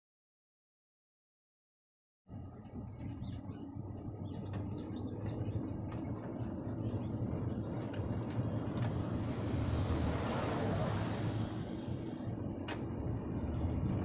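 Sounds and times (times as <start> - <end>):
diesel truck engine droning: 2.3 - 14.0
faint high squeaks and clicks: 2.4 - 9.0.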